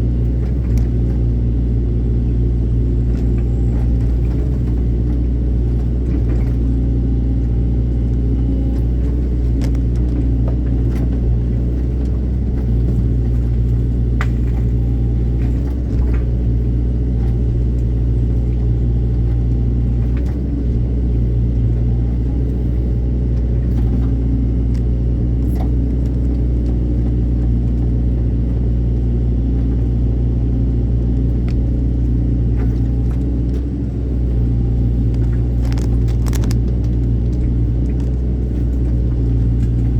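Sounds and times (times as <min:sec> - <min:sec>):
diesel engine rumbling: 0:00.0 - 0:39.9
faint clicks and knocks: 0:07.4 - 0:22.7, 0:31.1 - 0:39.9.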